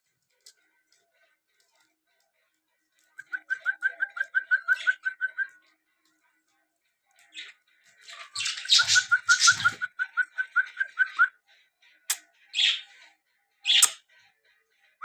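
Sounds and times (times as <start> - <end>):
harsh rasping bird calls: 7.2 - 11.3, 12.0 - 14.1
partridge clipped calls: 7.2 - 11.3, 12.1 - 12.9, 13.6 - 14.0.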